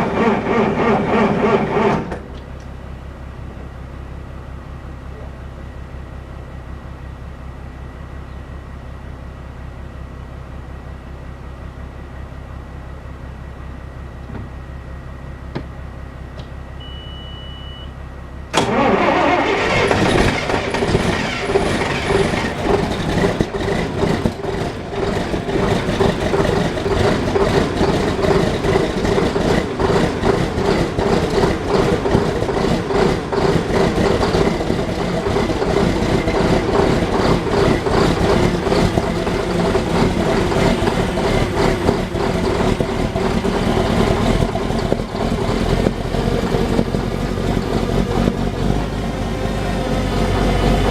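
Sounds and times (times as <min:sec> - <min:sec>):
tractor diesel engine starting: 0:00.0 - 0:50.9
short high beep: 0:16.8 - 0:18.0.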